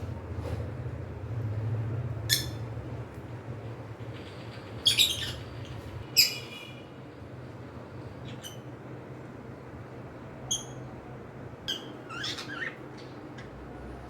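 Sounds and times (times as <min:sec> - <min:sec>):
cockatiels chirping: 0:11.7 - 0:13.1.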